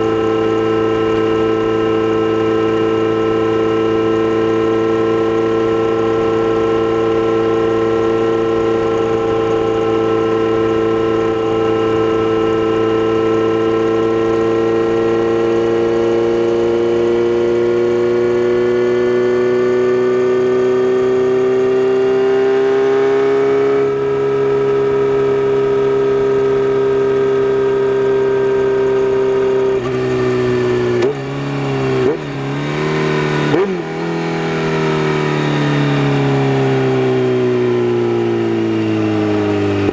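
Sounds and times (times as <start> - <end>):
motorcycle engine cruising: 0.0 - 39.9
motorcycle throttle blips: 28.9 - 36.1.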